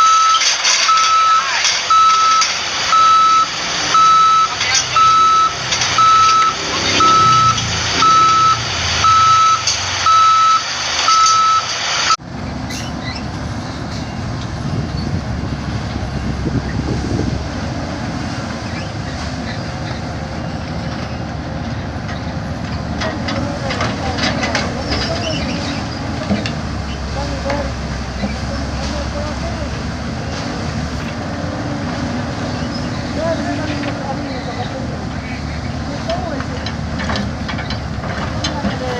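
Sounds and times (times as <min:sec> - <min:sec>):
reversing alarm beeping: 0:00.0 - 0:12.2
heavy engine rumble: 0:00.0 - 0:38.9.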